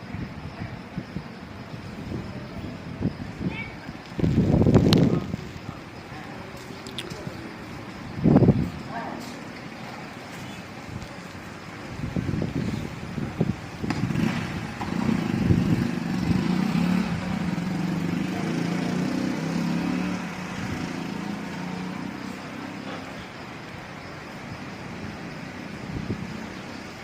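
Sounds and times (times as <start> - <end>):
wind buffeting microphone: 0.0 - 9.0, 10.6 - 18.2, 23.5 - 27.0
vehicle engine passing: 12.4 - 23.4.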